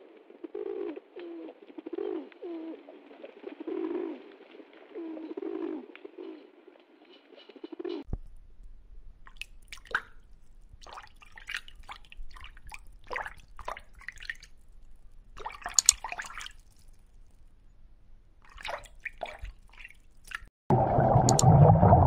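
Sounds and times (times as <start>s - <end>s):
water dripping: 8.1s - 17.8s, 18.4s - 22.0s.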